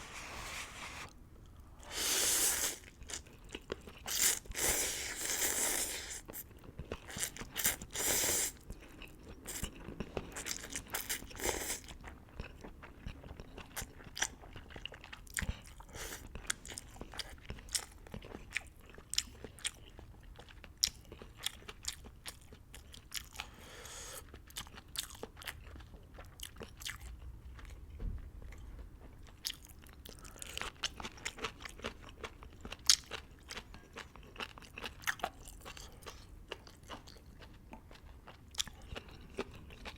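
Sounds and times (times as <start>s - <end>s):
loud noodle slurps: 1.9s - 2.8s.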